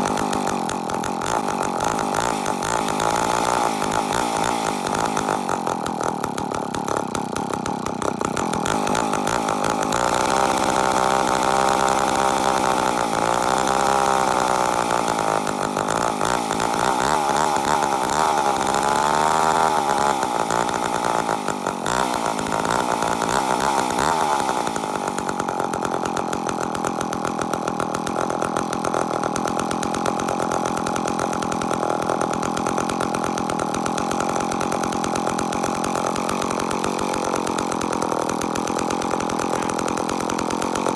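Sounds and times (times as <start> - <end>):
chainsaw running: 0.0 - 40.9.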